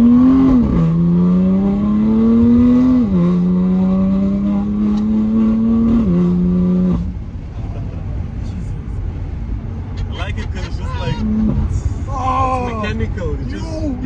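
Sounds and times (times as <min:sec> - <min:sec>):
car engine revving through gear shifts: 0:00.0 - 0:07.2.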